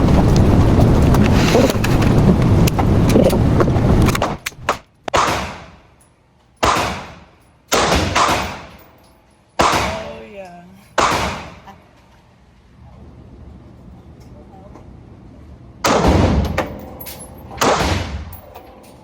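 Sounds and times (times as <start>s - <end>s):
loud steady rumble: 0.0s - 4.8s
echoing gunshots: 4.2s - 5.8s, 6.6s - 8.8s, 9.6s - 10.1s, 11.0s - 11.6s, 15.8s - 16.8s, 17.6s - 18.4s.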